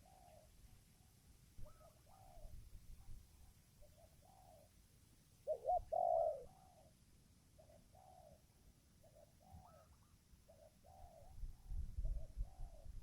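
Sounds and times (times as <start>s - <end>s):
dove cooing: 0.0s - 0.5s, 3.8s - 4.7s, 5.4s - 7.0s, 7.6s - 8.4s, 9.0s - 11.4s.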